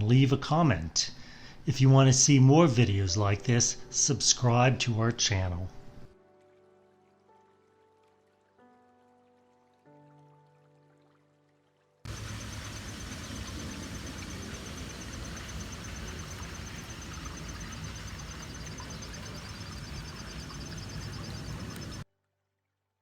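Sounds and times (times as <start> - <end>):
insect trill: 12.1 - 22.0
low rumble: 12.1 - 22.0.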